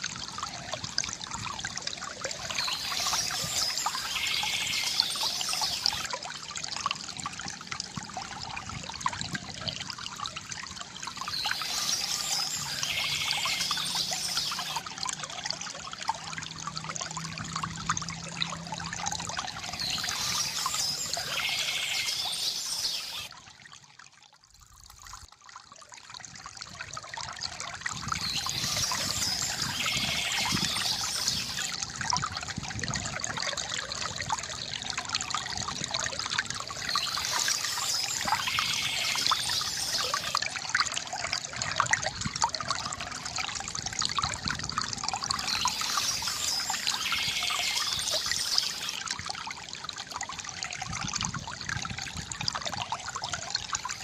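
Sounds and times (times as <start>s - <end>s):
river water gurgling over stones: 0.0s - 54.0s
birds chirping: 11.3s - 14.8s, 19.7s - 23.3s, 28.2s - 31.7s, 45.4s - 49.0s.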